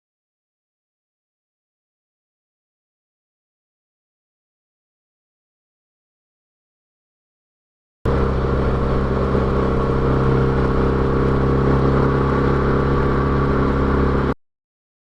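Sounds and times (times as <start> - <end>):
motorcycle engine running: 8.1 - 14.4.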